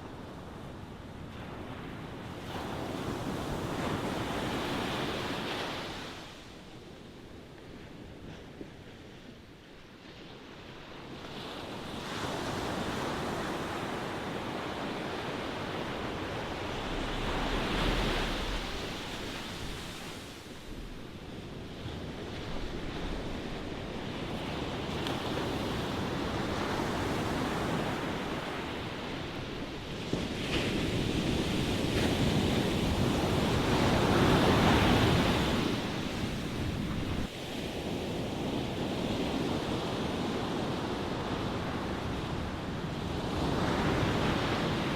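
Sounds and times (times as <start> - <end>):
ocean waves breaking: 11.5 - 29.6.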